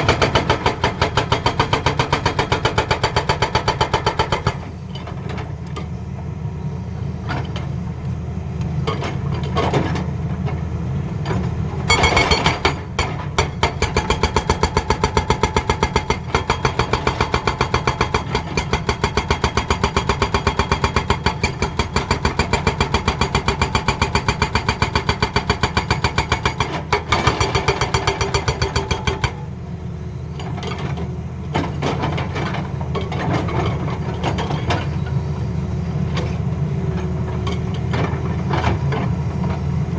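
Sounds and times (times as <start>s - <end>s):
hydraulic breaker hammering: 11.9s - 29.5s.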